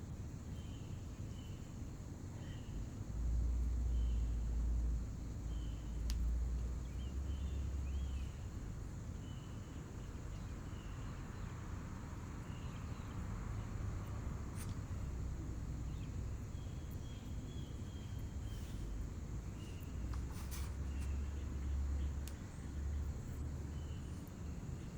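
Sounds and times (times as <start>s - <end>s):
small birds chirping: 0.0s - 24.9s
faint clicks: 6.0s - 6.7s, 14.0s - 15.1s, 19.6s - 24.4s.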